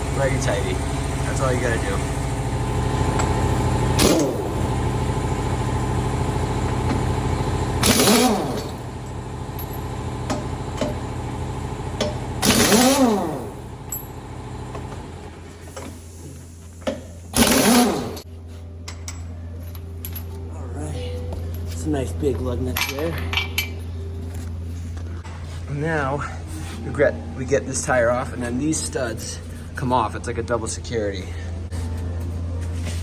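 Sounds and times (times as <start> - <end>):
steady machine hum: 0.0 - 33.0
pneumatic impact wrench hammering: 3.2 - 4.8, 6.6 - 9.0, 9.6 - 11.1, 12.0 - 14.1, 16.8 - 18.3.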